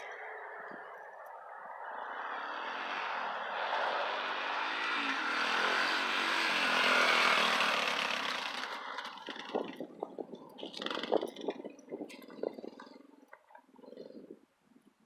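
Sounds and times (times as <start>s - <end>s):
dirt bike engine passing: 1.8s - 13.1s.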